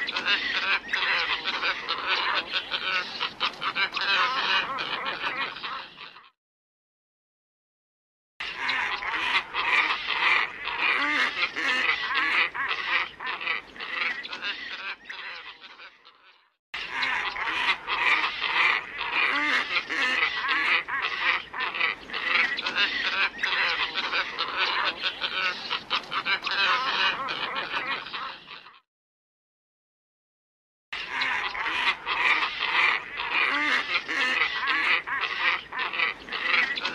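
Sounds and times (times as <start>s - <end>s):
flock of birds harsh calls: 0.0s - 6.4s, 8.4s - 28.8s, 31.0s - 36.9s.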